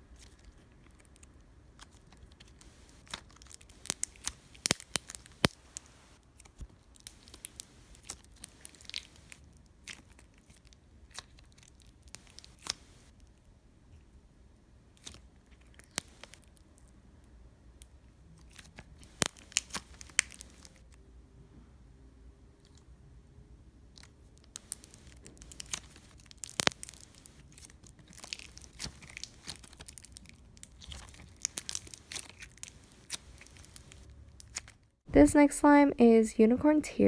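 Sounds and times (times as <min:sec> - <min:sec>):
slime being stretched and pressed: 0:00.1 - 0:13.1, 0:15.0 - 0:16.6, 0:18.4 - 0:21.0, 0:24.0 - 0:34.8
slime popping and clicking: 0:02.4 - 0:06.2, 0:07.0 - 0:10.0, 0:12.1 - 0:13.1, 0:15.8 - 0:16.5, 0:19.0 - 0:20.8, 0:24.6 - 0:34.6.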